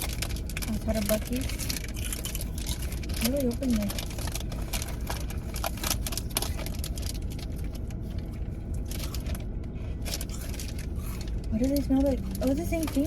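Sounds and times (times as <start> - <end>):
plastic candy wrapper crinkling: 0.0 - 13.0
steady low hum: 0.0 - 13.0.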